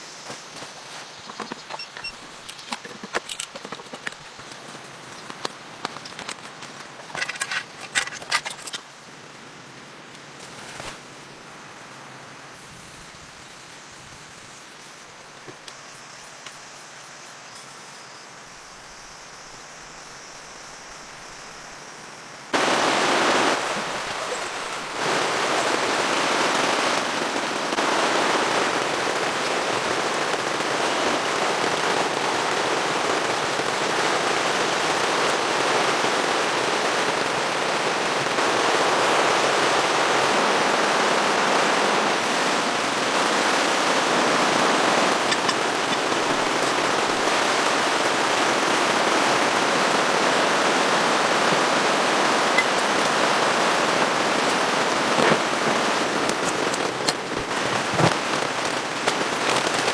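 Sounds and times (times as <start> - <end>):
heavy rain pattering: 22.6 - 59.9.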